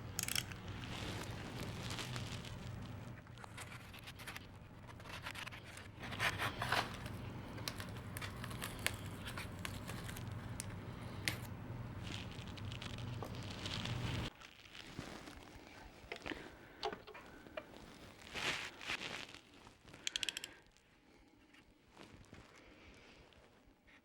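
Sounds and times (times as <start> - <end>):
low hum: 0.0 - 14.3.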